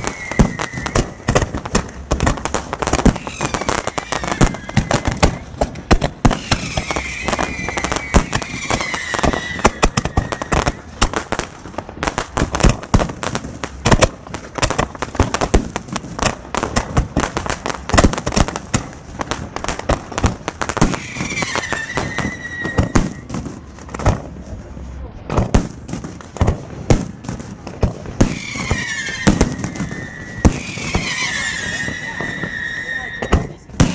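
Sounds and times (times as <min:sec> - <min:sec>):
firework whistle: 0:00.0 - 0:11.3, 0:20.3 - 0:23.8, 0:28.2 - 0:33.9
fireworks bangs and crackles: 0:00.0 - 0:33.9.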